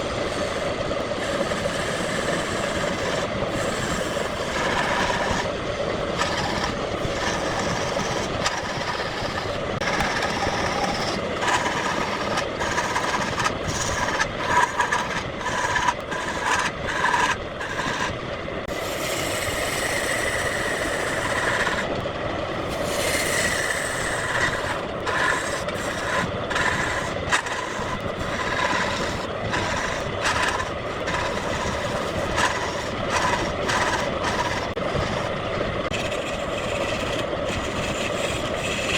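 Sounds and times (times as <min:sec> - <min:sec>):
hissing wood cuts: 0:00.0 - 0:22.0, 0:22.6 - 0:38.9
turning tool ticking on wood: 0:00.0 - 0:22.0, 0:22.6 - 0:38.9
lathe motor hum: 0:00.0 - 0:38.9.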